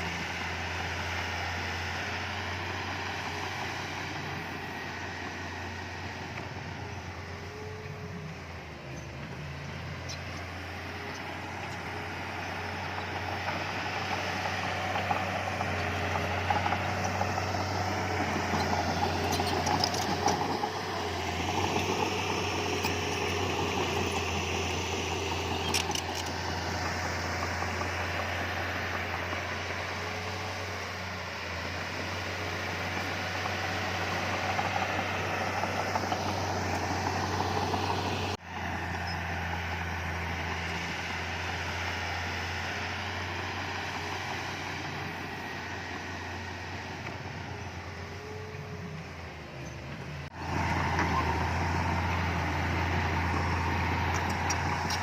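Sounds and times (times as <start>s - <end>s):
heavy diesel machinery running: 0.0s - 55.0s.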